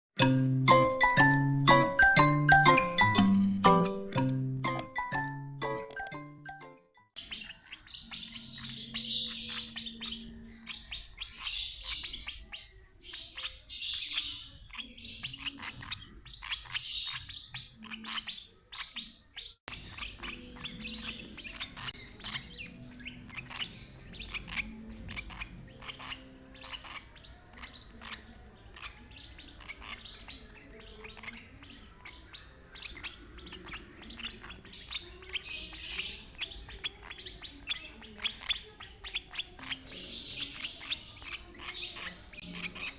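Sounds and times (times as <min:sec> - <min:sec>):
bird chicks begging calls: 0:07.2 - 0:42.9.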